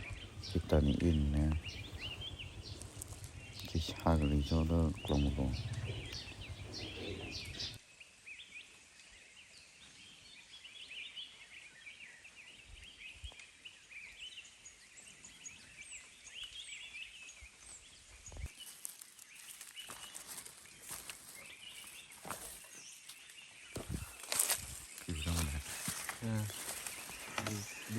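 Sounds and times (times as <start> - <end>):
rustles: 0.0 - 7.8, 17.2 - 27.9
small birds chirping: 0.0 - 27.9.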